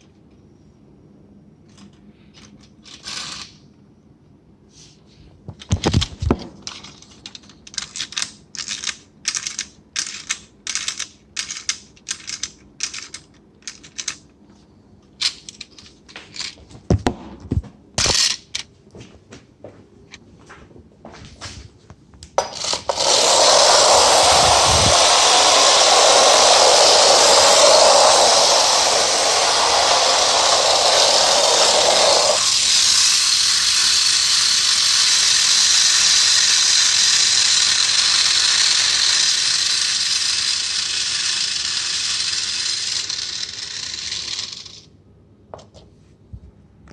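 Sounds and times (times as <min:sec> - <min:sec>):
clockwork motor whirring rattle: 0:02.9 - 0:03.6, 0:22.4 - 0:44.9.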